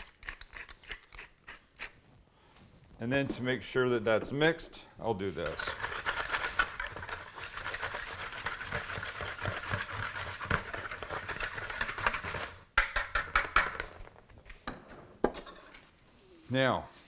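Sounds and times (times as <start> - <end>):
utensil stirring flour in bowl: 4.2 - 13.7
utensil tapping bowl: 5.4 - 14.0.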